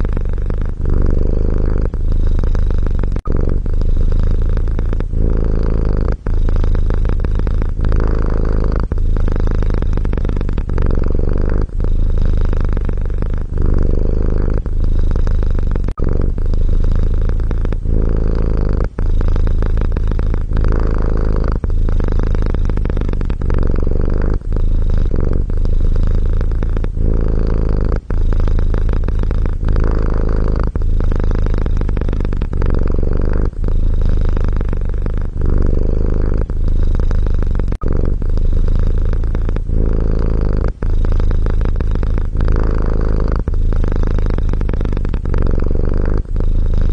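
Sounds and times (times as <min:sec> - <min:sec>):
cat purring: 0:00.0 - 0:46.9.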